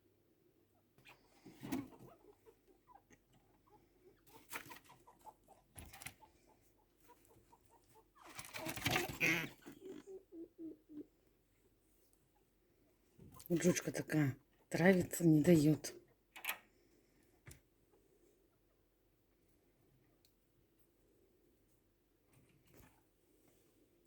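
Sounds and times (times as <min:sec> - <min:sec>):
chinchillas clucking calls: 0:07.0 - 0:11.1.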